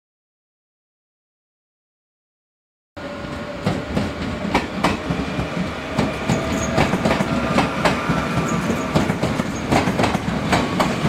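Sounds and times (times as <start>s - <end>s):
train passing close by: 3.0s - 11.0s
wheels clacking over rail joints: 3.6s - 11.0s.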